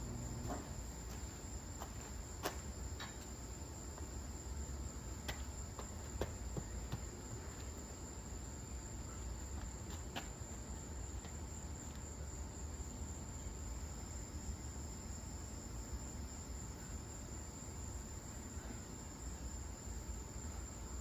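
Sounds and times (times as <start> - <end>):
low hum: 0.0 - 1.0.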